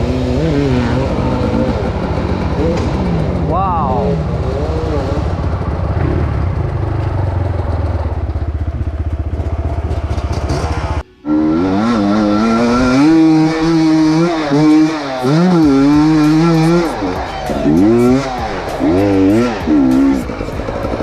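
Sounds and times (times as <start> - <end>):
motorcycle engine pulsing: 0.0 - 21.0
higher engine note wavering: 9.3 - 21.0.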